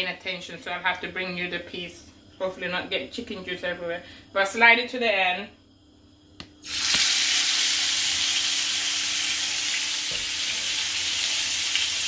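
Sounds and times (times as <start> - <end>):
chicken sizzling in hot oil: 6.6 - 12.0.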